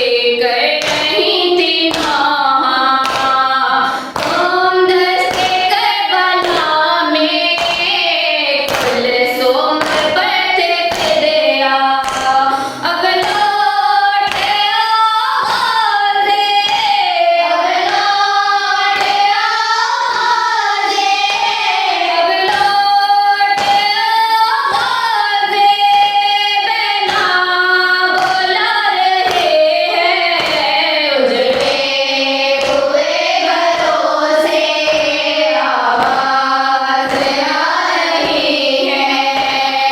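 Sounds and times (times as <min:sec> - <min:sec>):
hands slapping chests: 0:00.8 - 0:02.3, 0:03.0 - 0:04.5, 0:29.2 - 0:39.8.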